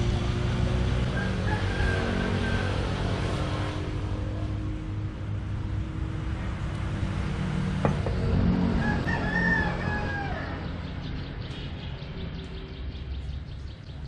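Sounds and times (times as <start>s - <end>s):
rooster crowing: 1.0s - 3.2s, 8.6s - 10.8s.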